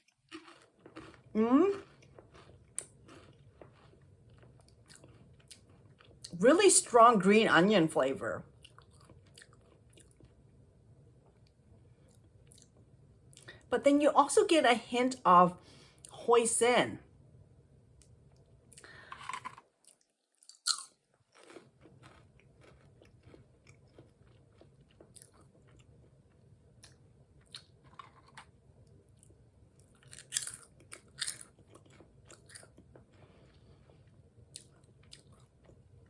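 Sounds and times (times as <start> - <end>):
chips crunching while chewed: 0.0 - 6.9, 8.6 - 10.4, 18.8 - 26.2, 26.8 - 28.6, 29.2 - 35.8.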